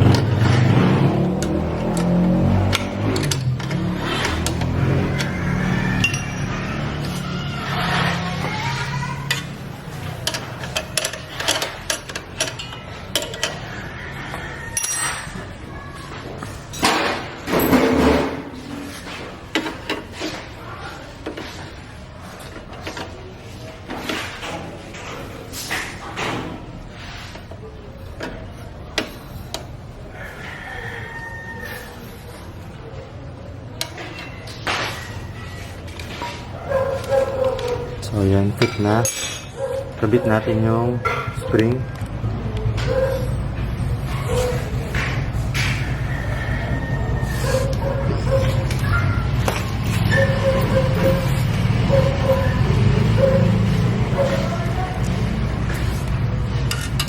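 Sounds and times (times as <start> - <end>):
metal tools clinking: 0.0 - 8.2, 8.8 - 13.7, 14.6 - 15.5, 33.8 - 42.2, 47.4 - 57.0.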